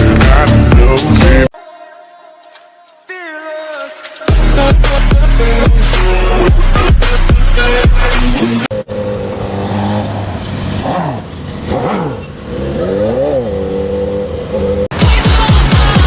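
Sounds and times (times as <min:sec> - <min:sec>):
electronic music: 0:03.8 - 0:08.8, 0:14.9 - 0:16.0
engine idling and revving: 0:04.3 - 0:16.0.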